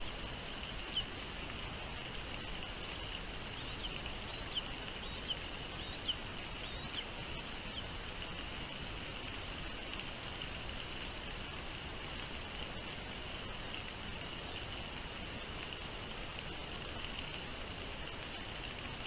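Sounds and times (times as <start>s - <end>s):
small bird chirping: 0.0s - 8.0s
even hiss: 0.0s - 19.0s.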